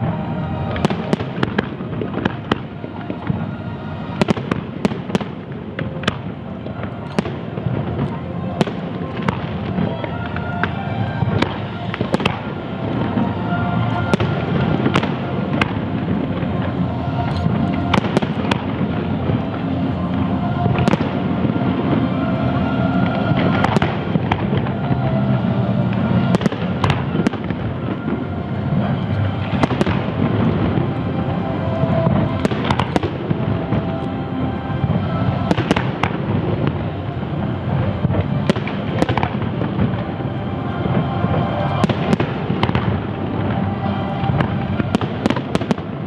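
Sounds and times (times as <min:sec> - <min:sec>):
fireworks bursts and crackling: 0:00.0 - 0:46.0.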